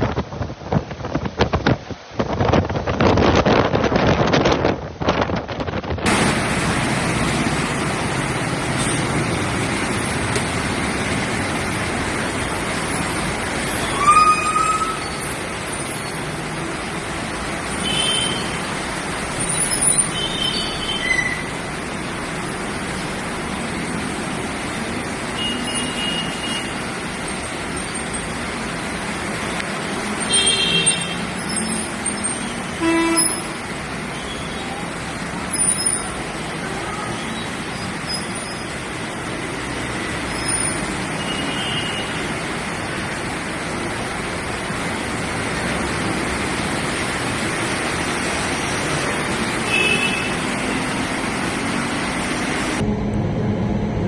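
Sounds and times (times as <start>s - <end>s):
road traffic: 0.0s - 54.0s
vehicle horns honking: 17.8s - 18.6s, 25.4s - 26.9s, 30.3s - 31.3s, 32.5s - 33.6s, 41.2s - 42.2s, 49.6s - 50.8s.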